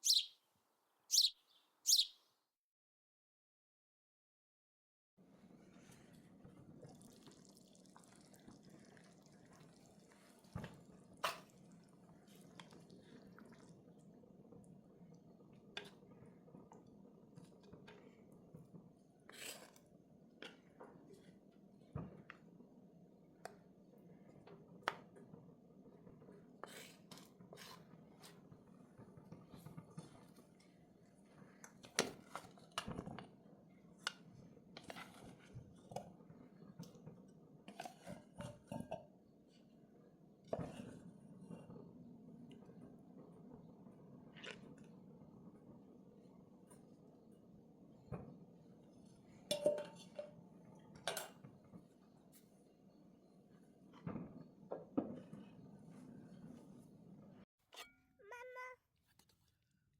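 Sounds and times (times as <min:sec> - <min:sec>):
utensils clinking against dishes: 0:49.5 - 0:50.3.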